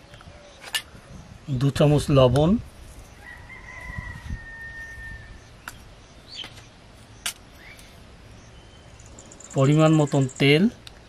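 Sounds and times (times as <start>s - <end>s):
bird chirps: 4.6s - 11.0s.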